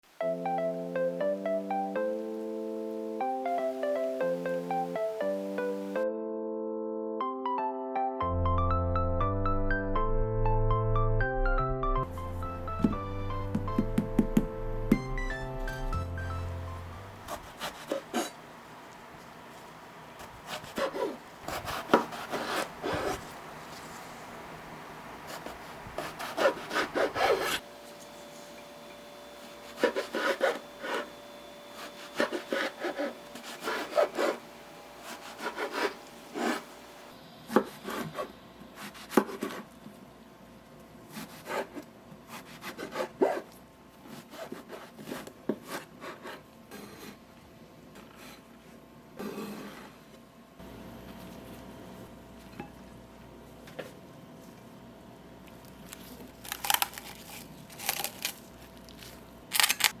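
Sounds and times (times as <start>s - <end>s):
knife cutting on wooden board: 17.3s - 18.4s, 20.2s - 23.2s, 25.3s - 27.6s, 29.7s - 31.1s, 35.0s - 36.7s, 37.5s - 39.7s.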